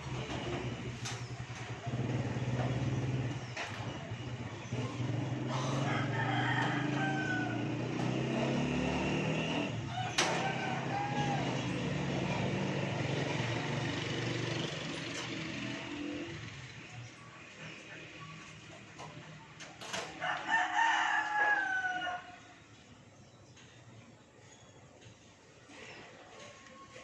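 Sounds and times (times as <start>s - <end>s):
engine humming: 0.0s - 20.4s
rooster crowing: 5.5s - 8.6s, 9.7s - 12.1s, 20.0s - 22.6s.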